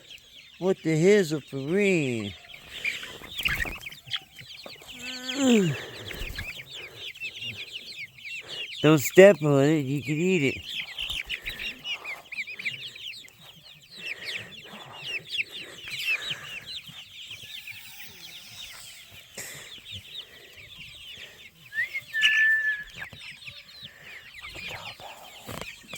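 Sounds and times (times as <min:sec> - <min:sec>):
chickens clucking and chirping: 0:00.0 - 0:25.9
drawn-out chicken call: 0:00.0 - 0:25.9.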